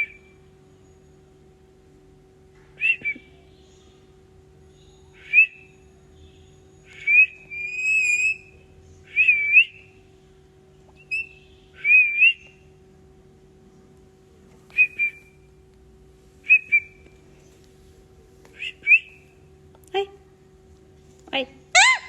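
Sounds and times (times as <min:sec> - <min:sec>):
parrot whistling: 0:06.9 - 0:08.5, 0:11.0 - 0:12.5, 0:21.7 - 0:22.0.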